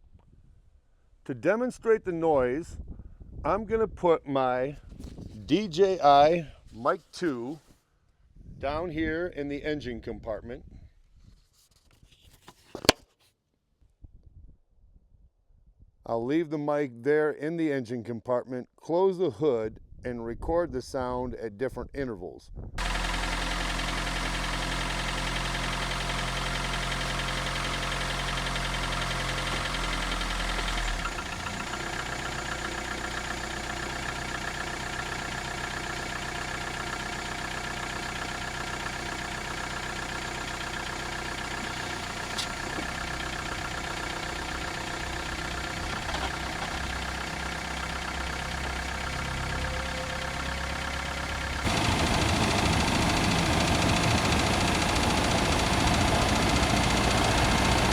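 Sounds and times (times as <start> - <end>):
car engine running: 22.8 - 57.9.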